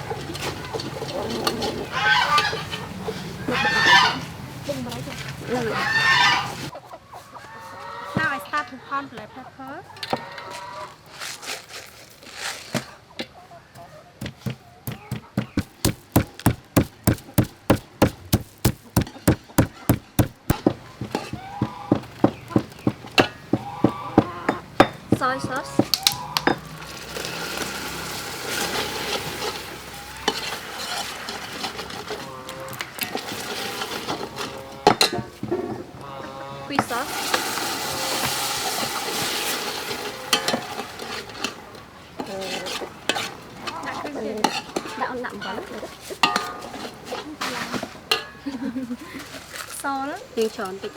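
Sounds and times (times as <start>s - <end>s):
pestle pounding in a mortar: 13.8s - 26.8s
utensil knocking against pan: 14.2s - 26.8s
food sizzling in pan: 36.9s - 40.9s.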